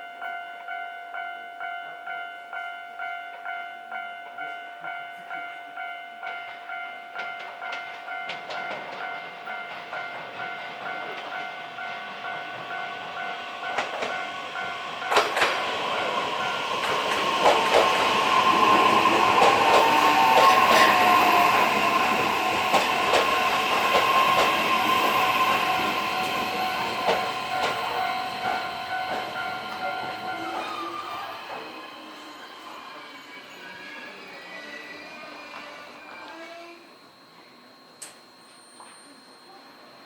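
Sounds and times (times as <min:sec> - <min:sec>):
electric train passing: 0:00.3 - 0:40.0
train wheels clacking: 0:06.2 - 0:31.8
level crossing bell ringing: 0:17.7 - 0:31.4.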